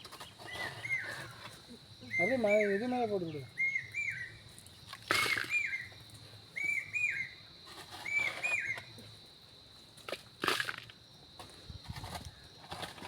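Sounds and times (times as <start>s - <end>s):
bird calling whistled notes: 2.1s - 2.9s, 3.6s - 4.3s, 5.2s - 5.9s, 6.6s - 7.4s, 8.0s - 8.9s.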